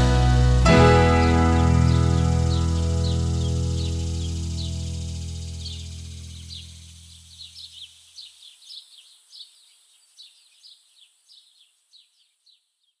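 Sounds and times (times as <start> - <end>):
sustained music chord: 0.0 - 6.4
steady high hiss: 0.0 - 11.3
birds chirping: 0.0 - 13.0.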